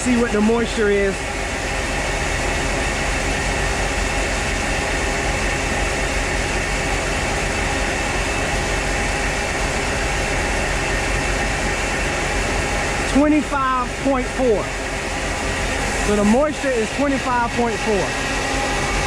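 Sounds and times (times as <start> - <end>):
farm machinery droning: 0.0 - 19.0.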